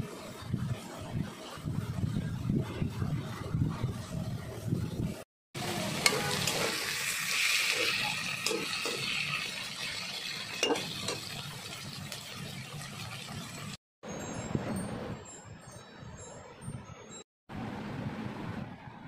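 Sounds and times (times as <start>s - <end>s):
okra sizzling in a pan: 5.6s - 13.8s
metal spatula clinking on pan: 7.8s - 9.2s, 10.5s - 11.4s.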